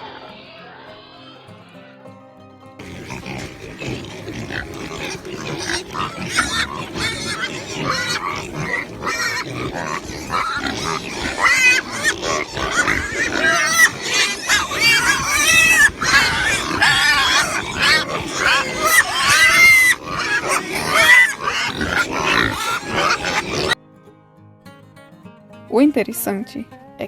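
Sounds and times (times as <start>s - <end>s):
pigs squealing and grunting: 2.8s - 23.8s.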